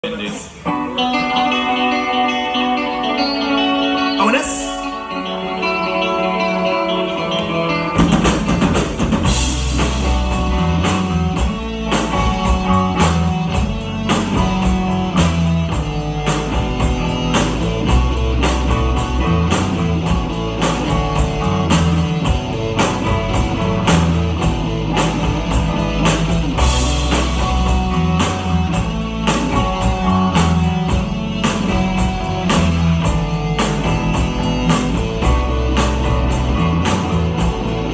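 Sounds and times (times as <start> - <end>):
electric guitar: 0.0 - 37.9
low bass notes: 4.7 - 37.9
drum kit beat: 8.0 - 37.9.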